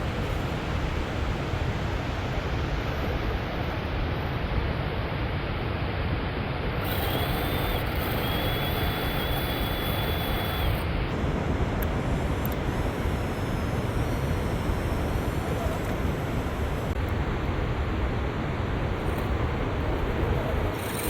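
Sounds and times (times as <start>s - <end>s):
toy truck rushing noise: 6.7s - 11.1s, 19.0s - 21.0s
thin high whine: 6.7s - 17.3s, 18.8s - 21.0s.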